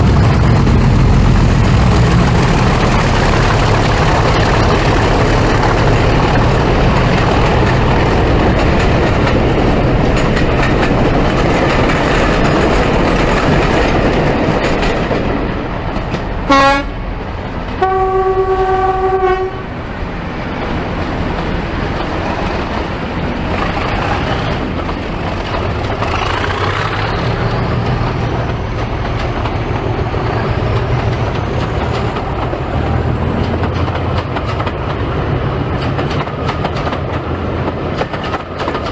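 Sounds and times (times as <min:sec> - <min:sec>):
diesel locomotive running: 0:00.0 - 0:38.9
locomotive horn: 0:16.4 - 0:17.0, 0:17.8 - 0:19.7.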